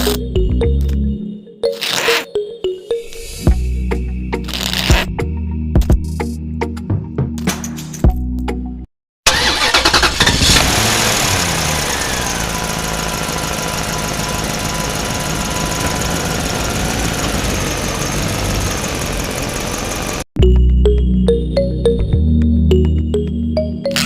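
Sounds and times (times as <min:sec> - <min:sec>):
tractor engine running: 0:09.3 - 0:20.3.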